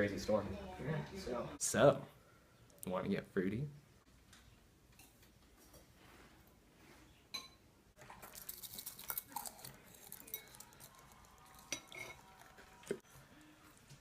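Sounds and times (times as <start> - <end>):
dishes and cutlery clattering: 7.3 - 10.8, 11.6 - 13.0.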